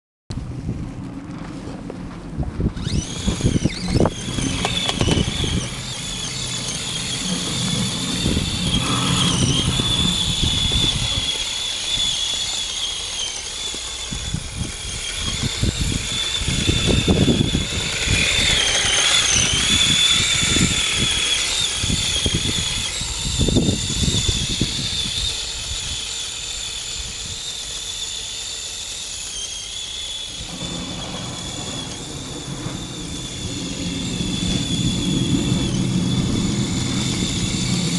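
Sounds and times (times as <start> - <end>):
rc car motor whine: 1.3 - 37.9
low knocks and rumbles: 30.6 - 37.9.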